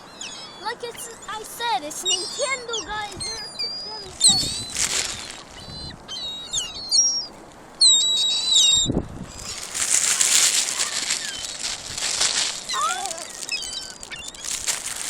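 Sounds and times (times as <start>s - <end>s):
gulls calling: 0.0s - 15.0s
rushing hiss: 9.3s - 15.0s.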